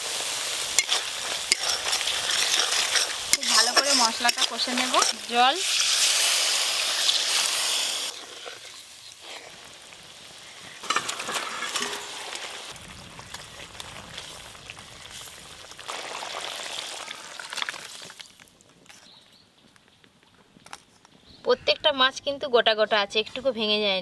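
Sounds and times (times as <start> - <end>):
water hissing in hot oil: 0.0 - 18.4
masala sizzling in a pan: 0.0 - 19.1
spoon clinking and scraping: 0.7 - 5.8, 10.8 - 12.8.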